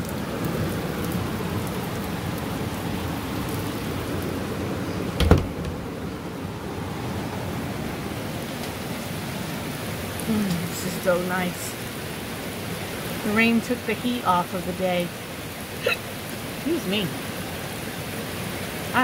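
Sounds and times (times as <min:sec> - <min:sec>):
steady rain: 0:00.0 - 0:19.0
sharp heavy thump: 0:05.2 - 0:05.8.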